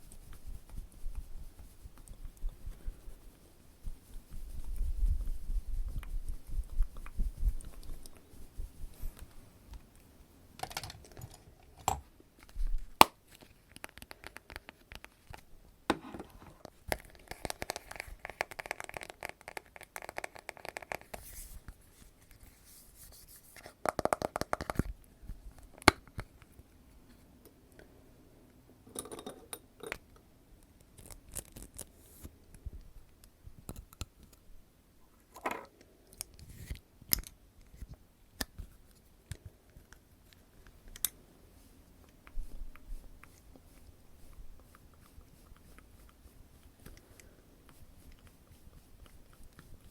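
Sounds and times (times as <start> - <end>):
scratchy crinkly noise: 0.0 - 9.6, 16.3 - 23.8, 30.9 - 32.4, 41.5 - 49.9.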